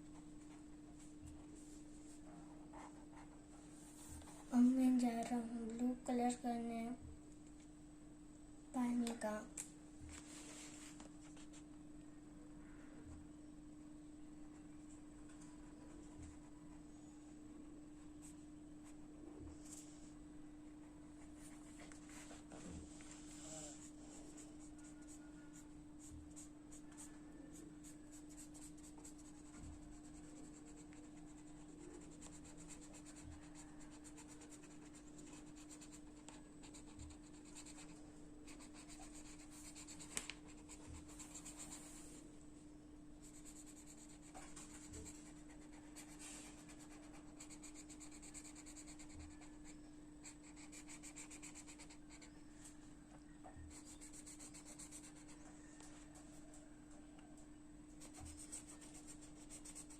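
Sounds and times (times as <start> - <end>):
steady low hum: 0.0 - 59.9
scratching on paper: 23.8 - 42.1, 43.2 - 52.3, 53.7 - 55.8, 58.0 - 59.9.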